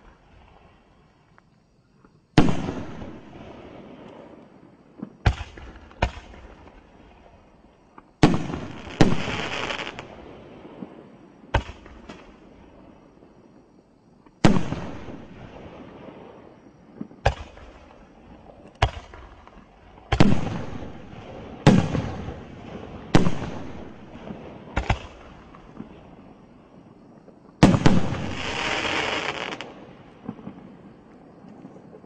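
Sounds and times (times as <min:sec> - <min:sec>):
firework bangs with rolling echo: 0:02.4 - 0:04.4, 0:05.1 - 0:07.4, 0:08.2 - 0:12.7, 0:14.4 - 0:26.2, 0:27.6 - 0:31.0
firework crackling: 0:08.3 - 0:11.0, 0:27.6 - 0:30.7.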